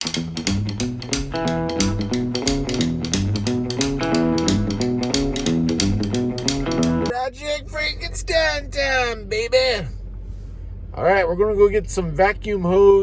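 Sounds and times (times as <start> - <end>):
upbeat boogie-woogie music: 0.0 - 7.1.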